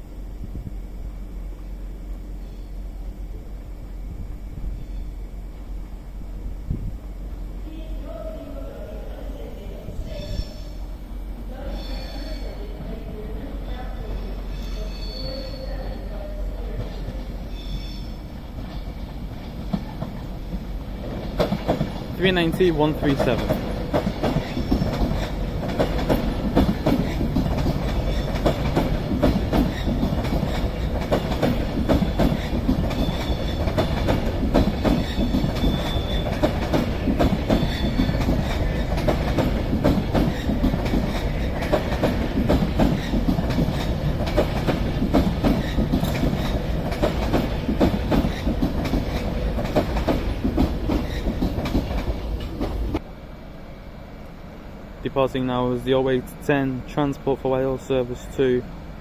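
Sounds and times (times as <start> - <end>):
train wheels clattering: 14.0 - 53.0.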